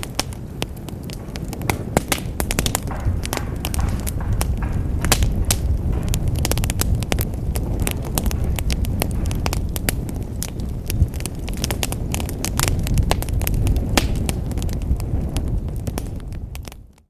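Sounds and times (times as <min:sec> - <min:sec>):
sharp fire pops: 0:00.0 - 0:17.0
wood fire crackling: 0:00.0 - 0:17.0.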